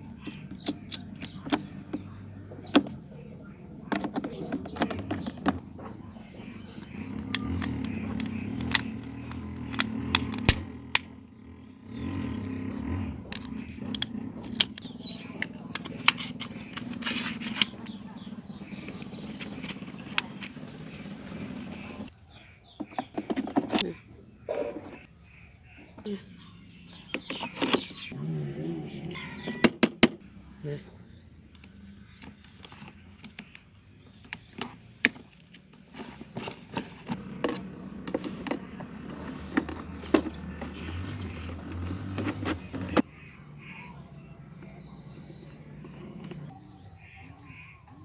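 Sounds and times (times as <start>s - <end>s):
scraping and handling noise: 0.0s - 11.2s, 11.8s - 23.9s, 26.9s - 28.2s, 31.4s - 46.6s
sharp clicks: 6.4s - 11.2s.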